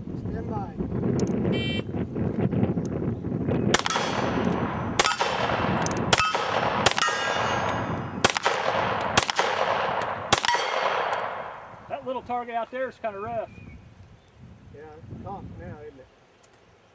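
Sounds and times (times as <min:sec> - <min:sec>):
gunshots: 0:03.7 - 0:11.7
steel plate ringing: 0:06.1 - 0:08.1.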